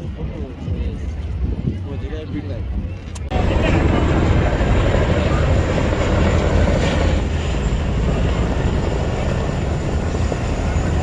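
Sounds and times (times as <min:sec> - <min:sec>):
aircraft turbine engines running: 0:02.6 - 0:11.0.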